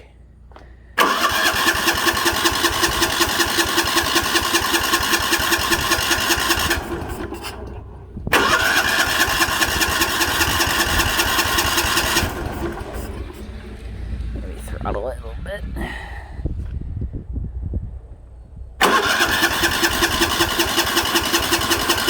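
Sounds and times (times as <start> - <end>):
engine starter cranking: 1.0 - 14.7, 18.8 - 22.0.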